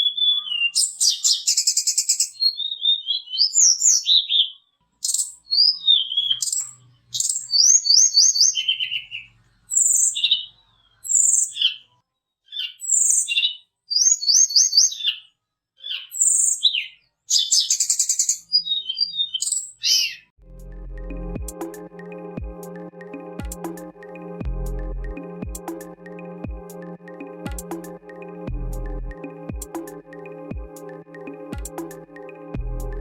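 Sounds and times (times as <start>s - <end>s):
songbird whistling and chirping: 0.0s - 11.9s, 12.5s - 20.3s.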